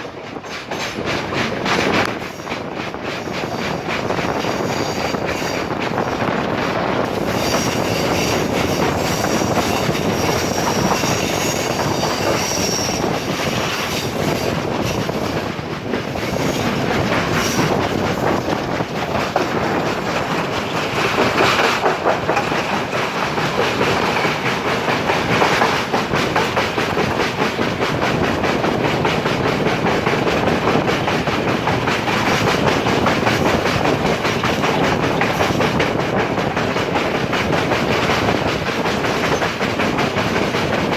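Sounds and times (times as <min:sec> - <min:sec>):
train wheels clattering on rails: 0:00.0 - 0:40.9
wheel squeals: 0:07.2 - 0:13.9.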